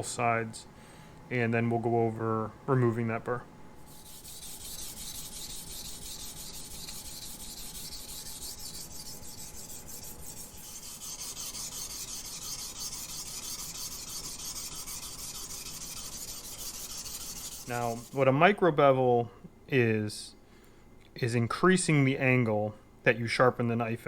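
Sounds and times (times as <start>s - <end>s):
knife scraping on whetstone: 3.9s - 18.2s.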